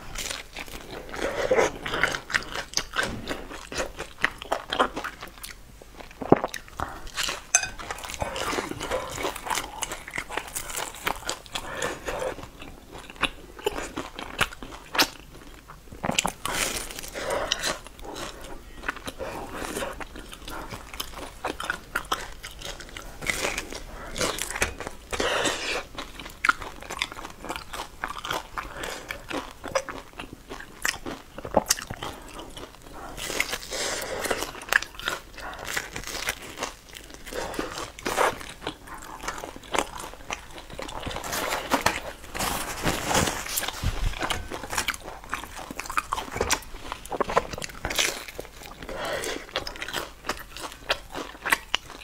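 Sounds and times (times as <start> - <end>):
crust crunching: 40.8 - 48.4
chewing mouth sounds: 43.4 - 52.0.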